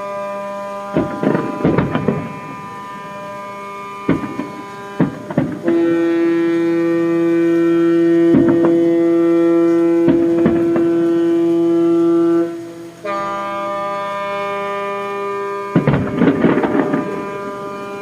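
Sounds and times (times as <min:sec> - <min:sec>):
firework bangs: 0:00.0 - 0:18.0
ship horn at different pitch: 0:00.0 - 0:18.0
ship horn blast: 0:00.0 - 0:18.0.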